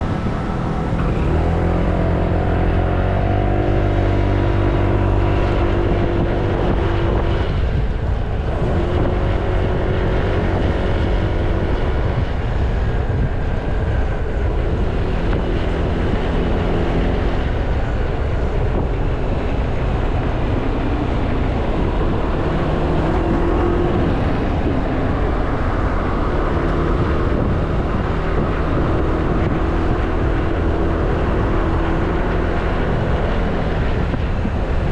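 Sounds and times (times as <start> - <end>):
scooter engine running: 0.0 - 7.1
wind noise on microphone: 0.0 - 34.9.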